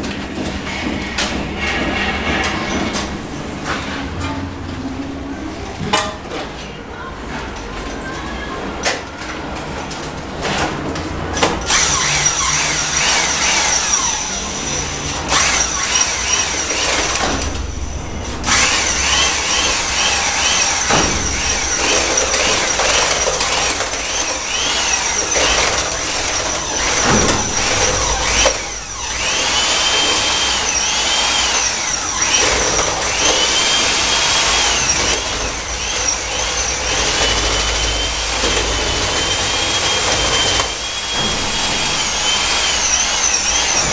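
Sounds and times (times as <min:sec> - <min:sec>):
mortar scraping and sloshing: 0:00.4 - 0:05.0
electric mixer motor whining: 0:11.6 - 0:43.9.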